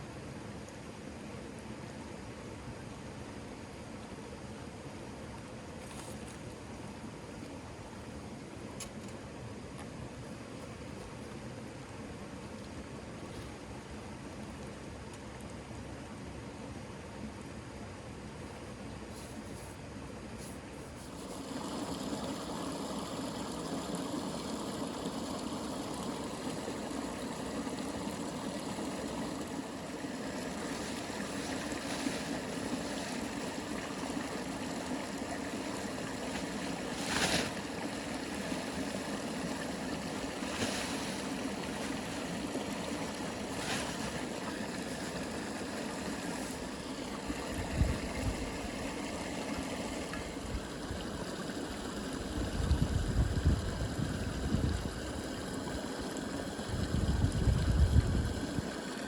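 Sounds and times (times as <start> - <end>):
rushing water: 21.0 - 59.0.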